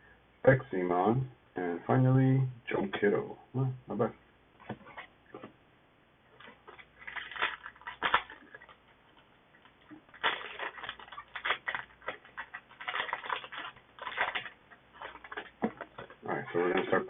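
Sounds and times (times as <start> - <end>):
foil wrapper crinkling and tearing: 6.4 - 17.0.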